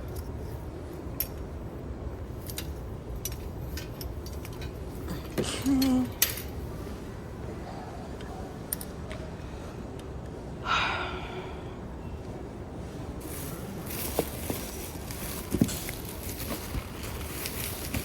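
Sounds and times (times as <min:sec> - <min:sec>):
metallic clicks of hand truck: 0:02.4 - 0:06.5.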